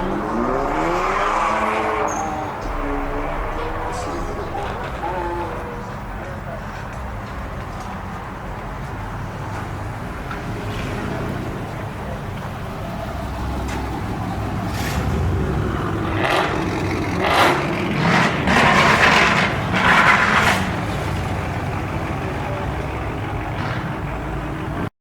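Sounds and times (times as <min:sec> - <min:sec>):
loud bursts of noise: 0:00.0 - 0:07.0
vehicle engine rumbling: 0:00.0 - 0:24.9.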